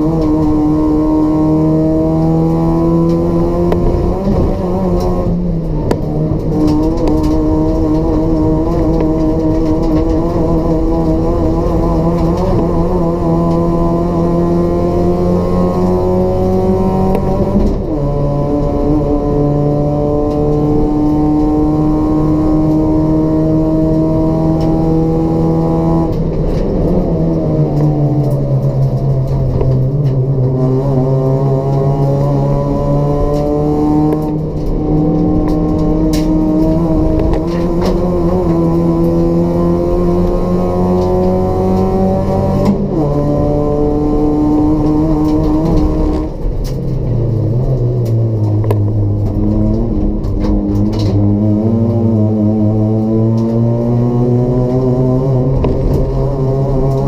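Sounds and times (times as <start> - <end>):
race car engine at high revs: 0.0 - 57.0.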